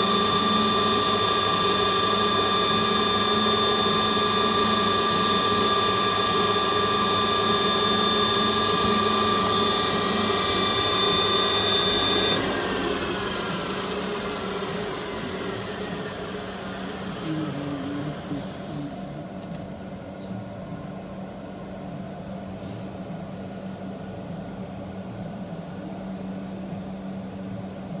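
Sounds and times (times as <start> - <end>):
lathe whine: 0.0 - 19.6
machine hum: 0.0 - 20.0
high squeal: 18.3 - 19.6.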